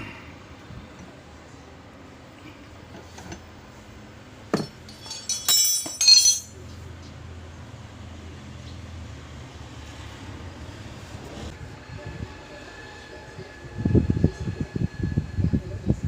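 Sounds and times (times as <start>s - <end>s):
metallic clinking and clattering: 4.5s - 6.6s.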